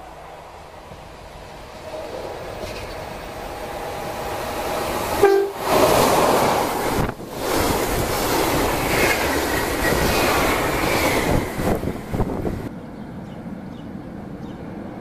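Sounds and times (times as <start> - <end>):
train coaches rushing past: 1.7 - 12.7
train horn blast: 5.2 - 5.6.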